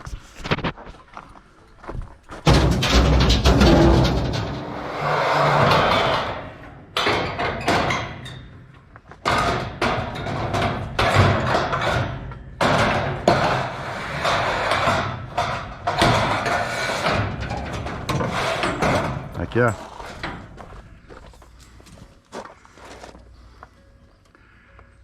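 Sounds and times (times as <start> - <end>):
scrap metal clanking crashes: 2.4 - 21.1.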